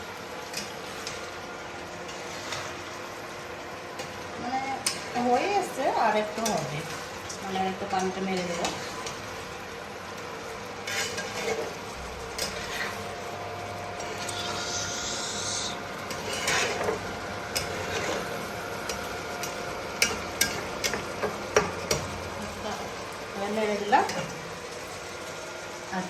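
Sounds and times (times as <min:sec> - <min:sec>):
spoon scraping frying pan: 0:10.8 - 0:13.1, 0:14.0 - 0:18.3.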